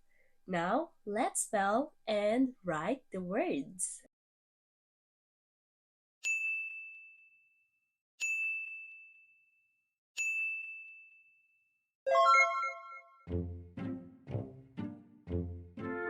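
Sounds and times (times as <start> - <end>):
bell-like ding: 6.2 - 7.5, 8.2 - 9.4, 10.2 - 11.4
bright chime of several notes: 12.1 - 13.2
plucked low background music: 13.3 - 16.0.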